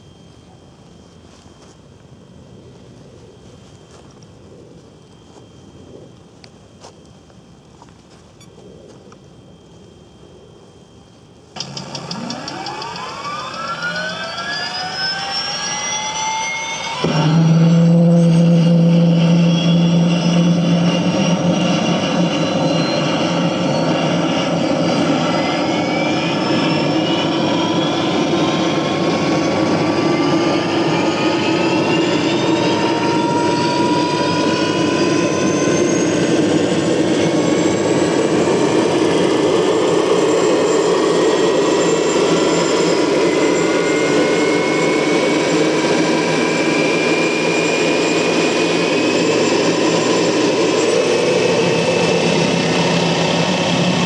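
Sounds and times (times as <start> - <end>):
turbine whines rising in pitch: 11.4 - 54.0
strong low hum: 11.6 - 25.6.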